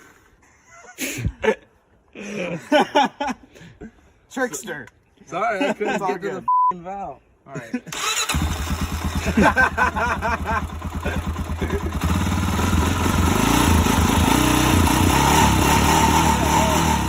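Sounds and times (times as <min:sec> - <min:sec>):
atv engine running: 0:08.1 - 0:17.0.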